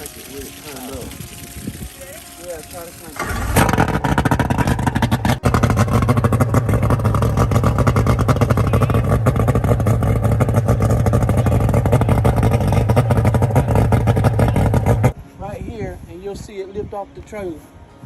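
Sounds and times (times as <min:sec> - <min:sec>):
two-stroke outboard motor running: 0:03.2 - 0:15.2.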